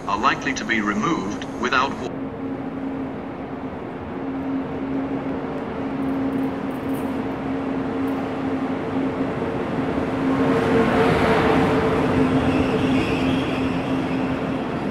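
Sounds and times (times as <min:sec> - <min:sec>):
steady low hum: 0:00.0 - 0:10.9
train rumbling on rails: 0:00.0 - 0:14.9.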